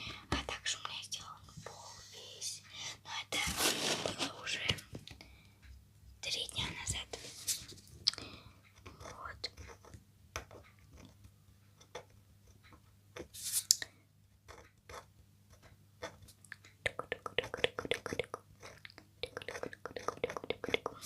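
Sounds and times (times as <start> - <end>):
crisp clicks and scrapes: 3.4 - 5.1.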